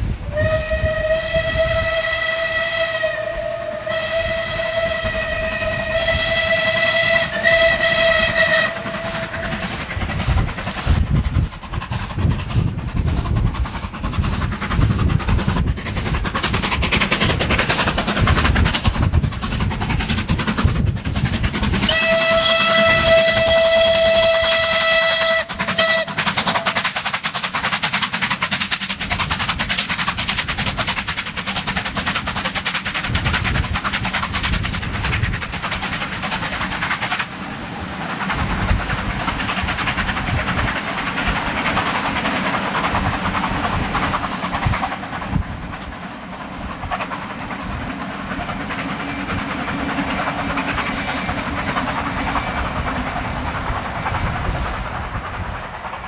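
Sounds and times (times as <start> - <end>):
diesel locomotive engine tone: 0.0 - 10.0, 21.9 - 26.8, 45.3 - 56.0
train rumble: 0.0 - 56.0
train wheels clicking over rails: 0.0 - 56.0.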